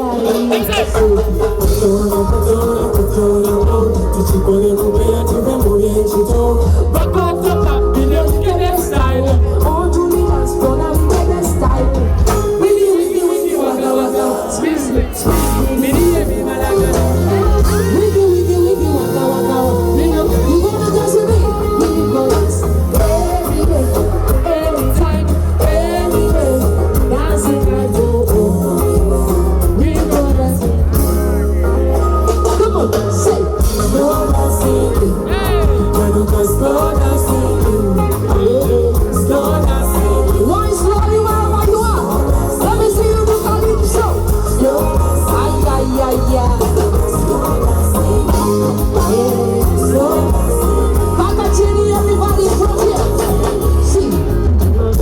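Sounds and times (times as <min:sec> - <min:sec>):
heavy bass: 0:00.0 - 0:12.8, 0:15.2 - 0:55.0
afrobeat pop song: 0:00.0 - 0:55.0
person singing: 0:00.0 - 0:55.0.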